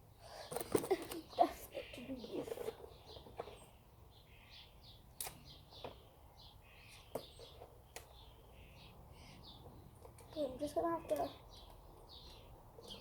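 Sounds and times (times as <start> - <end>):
faint birds chirping: 0.0 - 13.0
sharp clicks: 5.2 - 5.5.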